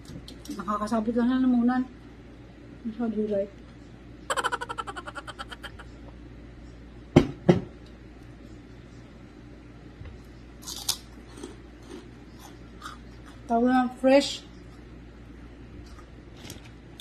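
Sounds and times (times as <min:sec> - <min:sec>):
crisp chip crunch: 0:10.6 - 0:13.4.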